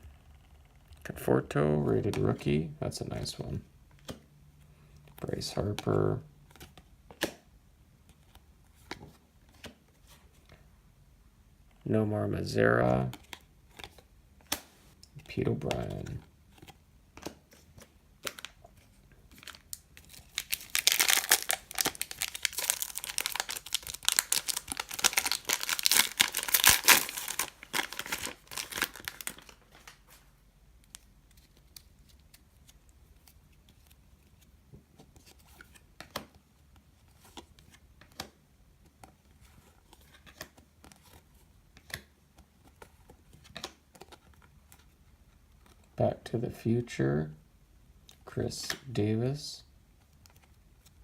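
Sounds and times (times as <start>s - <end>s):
card pack wrapper tearing: 19.3s - 30.0s.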